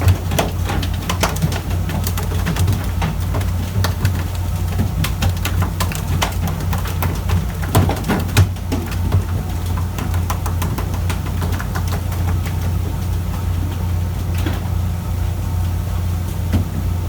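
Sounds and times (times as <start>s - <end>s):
splashy ticks: 0.0s - 13.4s
boat engine humming: 0.0s - 17.0s.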